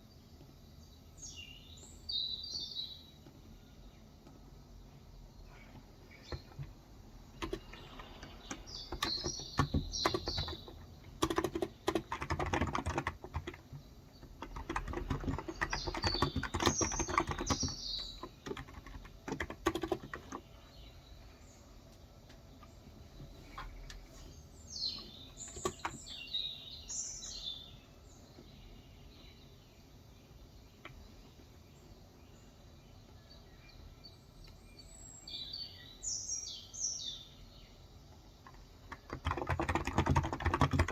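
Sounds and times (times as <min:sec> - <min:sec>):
bird chirping: 0:00.0 - 0:40.9
soft keyboard typing: 0:05.7 - 0:20.5, 0:25.0 - 0:26.2, 0:38.4 - 0:40.9.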